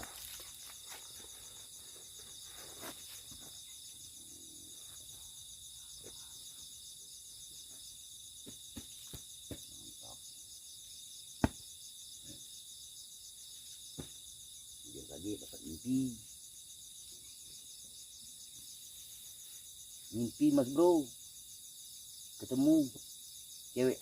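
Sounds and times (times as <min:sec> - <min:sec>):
crickets trilling: 0:00.0 - 0:24.0
sharp knock: 0:11.4 - 0:11.6.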